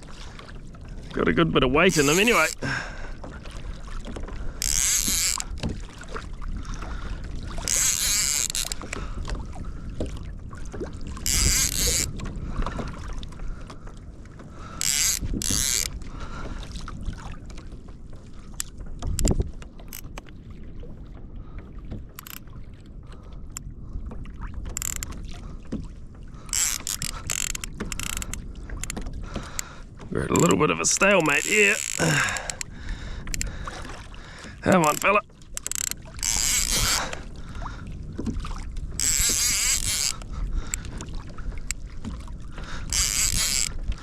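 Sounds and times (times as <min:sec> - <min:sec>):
water sloshing against kayak hull: 0:00.0 - 0:44.0
wind rumble on microphone: 0:00.0 - 0:44.0.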